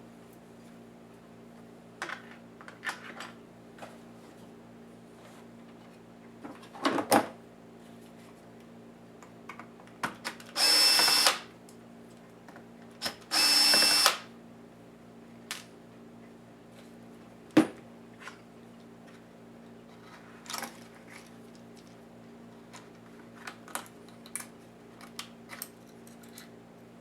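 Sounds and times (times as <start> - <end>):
electric screwdriver whirring: 10.6 - 11.4, 13.1 - 14.3
clicks and knocks of handling: 19.9 - 22.0, 22.6 - 26.6.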